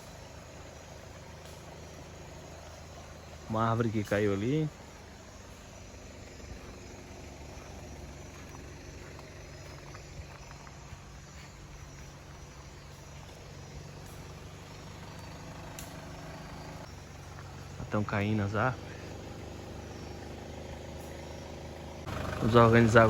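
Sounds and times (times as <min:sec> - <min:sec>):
vehicle engine idling: 0:00.0 - 0:23.0
faint clicks and snaps: 0:15.1 - 0:16.0.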